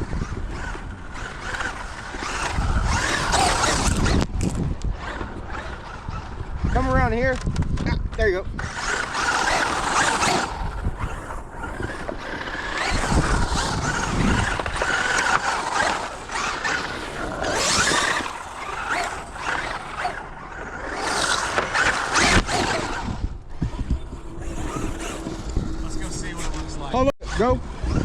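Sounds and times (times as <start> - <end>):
electric motor whine: 0.0 - 7.1, 8.6 - 28.0
tyre noise on dirt: 8.6 - 25.7.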